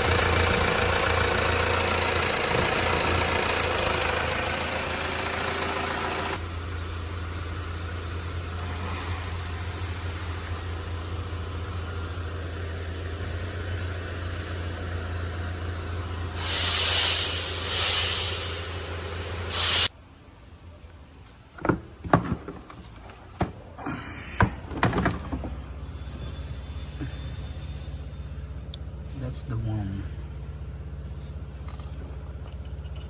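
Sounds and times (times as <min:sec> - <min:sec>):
car engine idling: 0:00.0 - 0:19.6, 0:20.2 - 0:33.0
loud hiss bursts: 0:16.4 - 0:20.2.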